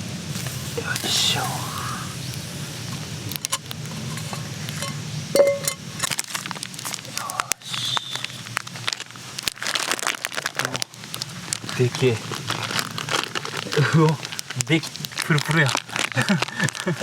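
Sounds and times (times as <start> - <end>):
crackling campfire: 0.0 - 17.0
cookware clinking and knocking: 4.1 - 5.8.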